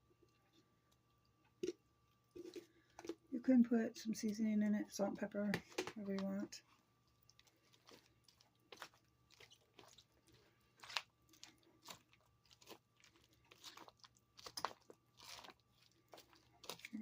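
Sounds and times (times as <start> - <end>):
spoon stirring chunky salad: 5.6 - 17.0.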